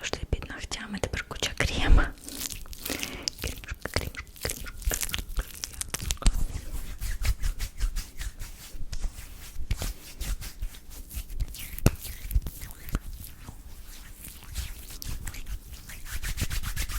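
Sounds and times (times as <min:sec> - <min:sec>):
hands rubbing: 0:06.5 - 0:16.9.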